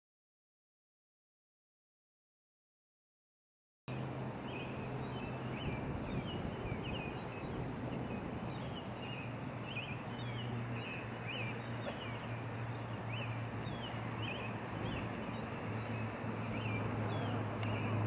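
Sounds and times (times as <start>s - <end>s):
small birds chirping: 3.9s - 18.0s.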